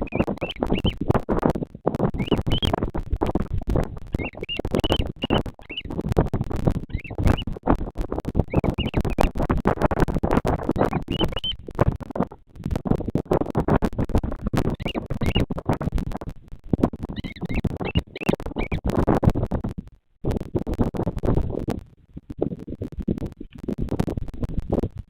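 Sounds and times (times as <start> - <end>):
high bird calls: 0.0 - 1.0, 2.2 - 2.8, 4.2 - 5.9, 6.9 - 7.4, 8.5 - 9.3, 11.0 - 11.6, 14.8 - 15.4, 17.2 - 18.8
crackling scratching rustle: 0.0 - 25.0.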